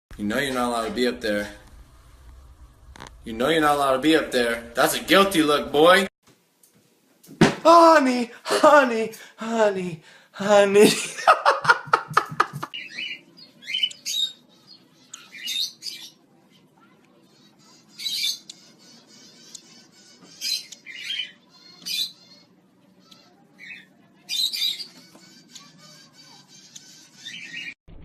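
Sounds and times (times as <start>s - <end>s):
parrot squawking: 12.7s - 16.2s, 16.8s - 27.8s.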